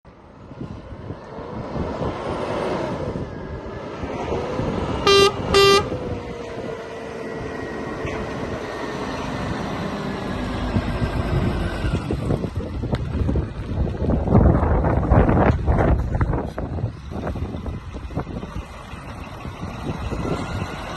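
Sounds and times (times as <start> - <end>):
truck diesel engine running: 3.4 - 20.9
truck horn blasts: 5.0 - 6.0.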